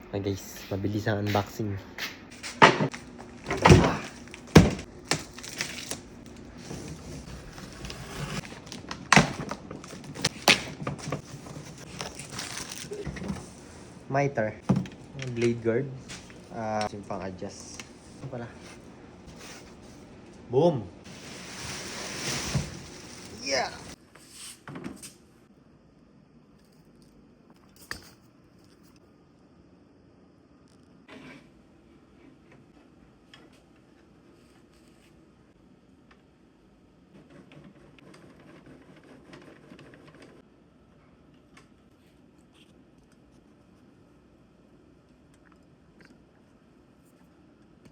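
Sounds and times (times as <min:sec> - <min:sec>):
thuds and knocks of handled boxes: 0:02.6 - 0:04.9
scraping: 0:21.1 - 0:24.0.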